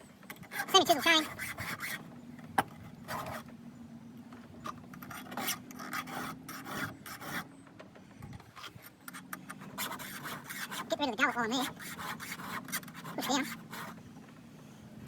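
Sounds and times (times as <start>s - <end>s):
file rasping on chainsaw chain: 0.3s - 2.0s, 3.0s - 3.5s, 4.9s - 7.5s, 8.5s - 14.0s.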